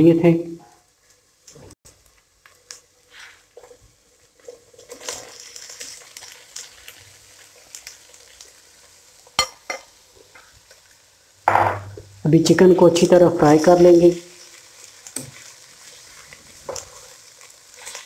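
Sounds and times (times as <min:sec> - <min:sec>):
chicken sizzling in oil: 0:00.8 - 0:11.5, 0:12.2 - 0:18.0
knock on pot: 0:11.5 - 0:12.0.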